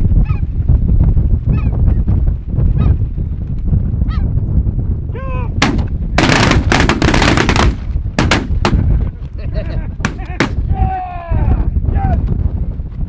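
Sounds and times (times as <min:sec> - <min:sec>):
shotgun fire: 0:05.6 - 0:08.9, 0:10.0 - 0:10.7.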